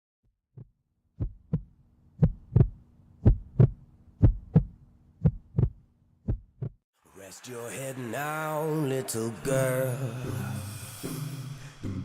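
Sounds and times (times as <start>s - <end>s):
heartbeat thumps: 0.5s - 6.8s.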